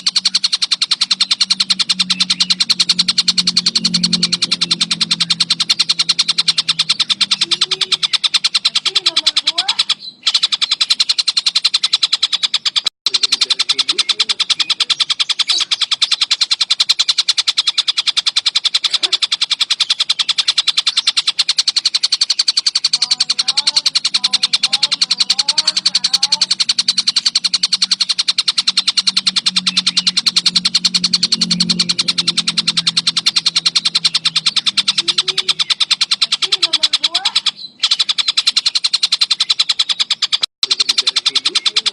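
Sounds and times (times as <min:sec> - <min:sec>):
kingfisher chattering trill: 0:00.0 - 0:41.9
soft low bird warbling: 0:00.0 - 0:41.9.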